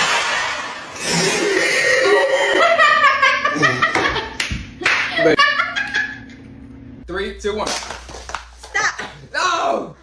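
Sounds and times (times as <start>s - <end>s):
people laughing hard: 2.4s - 4.4s, 5.0s - 6.2s.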